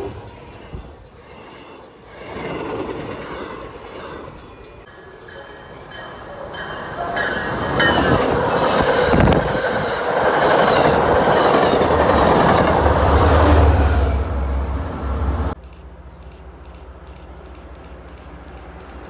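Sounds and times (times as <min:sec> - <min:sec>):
steel wheels rushing on rail: 0:00.0 - 0:15.6
wheels clicking over rail joints: 0:15.6 - 0:19.0.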